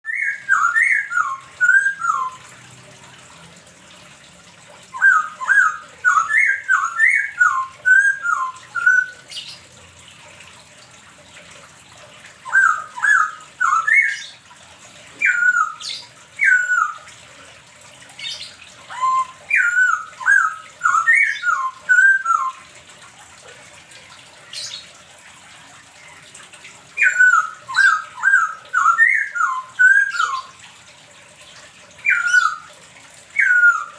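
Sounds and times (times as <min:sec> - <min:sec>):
bird singing whistled notes: 0:00.1 - 0:02.4, 0:05.0 - 0:09.6, 0:12.5 - 0:14.3, 0:15.2 - 0:17.1, 0:18.2 - 0:22.6, 0:27.0 - 0:30.5, 0:32.0 - 0:32.7, 0:33.4 - 0:33.9.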